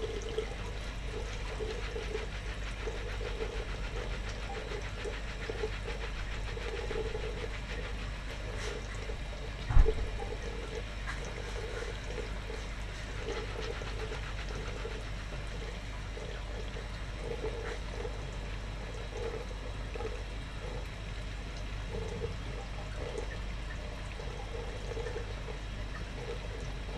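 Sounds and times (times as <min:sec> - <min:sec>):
machine hum: 0:00.0 - 0:26.9
heavy thump: 0:09.7 - 0:10.0.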